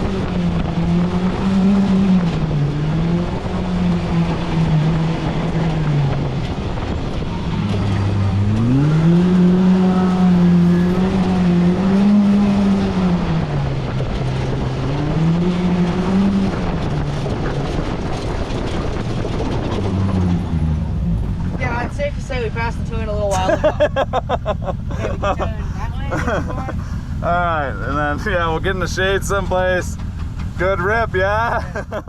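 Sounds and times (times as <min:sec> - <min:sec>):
rushing wind: 0:00.0 - 0:32.0
vehicle engine revving: 0:00.0 - 0:32.0
tyre noise: 0:23.1 - 0:32.0.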